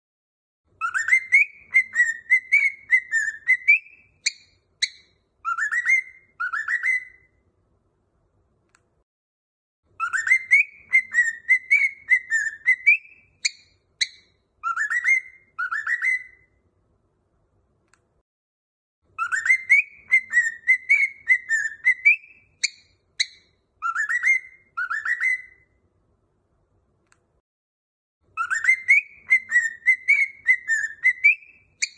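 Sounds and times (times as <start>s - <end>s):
cockatiel whistling a tune: 0.7s - 7.4s, 9.9s - 16.6s, 19.1s - 25.8s, 28.3s - 31.9s.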